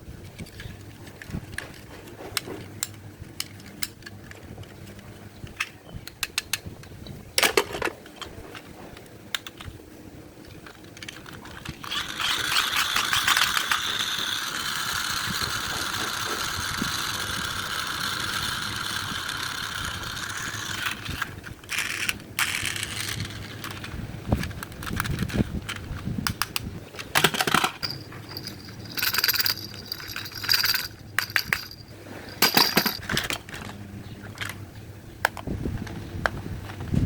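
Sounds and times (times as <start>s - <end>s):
plastic toy clicks and rattles: 0.4s - 8.3s, 10.5s - 33.7s
toy motor and gears whirring: 10.6s - 26.4s, 27.1s - 33.7s.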